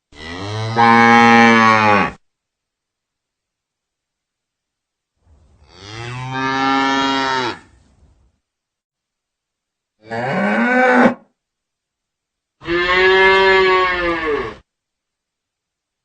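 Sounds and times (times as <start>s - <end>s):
cow mooing: 0.2s - 2.2s, 5.7s - 7.7s, 10.0s - 11.2s, 12.6s - 14.6s.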